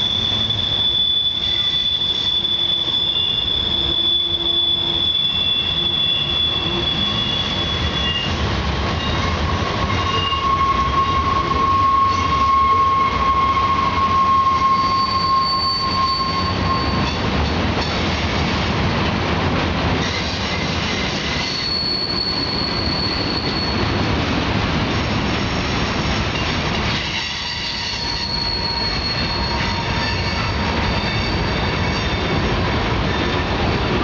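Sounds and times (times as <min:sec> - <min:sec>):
high-pitched wheel squeal: 0:00.0 - 0:08.4, 0:09.0 - 0:17.2, 0:21.2 - 0:23.9, 0:26.9 - 0:33.4
train wheels rumbling: 0:00.0 - 0:34.0.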